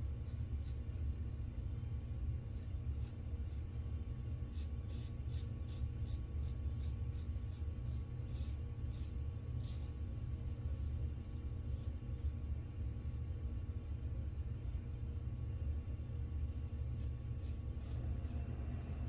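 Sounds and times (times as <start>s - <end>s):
steady low hum: 0.0s - 19.0s
razor scraping stubble: 17.0s - 19.0s.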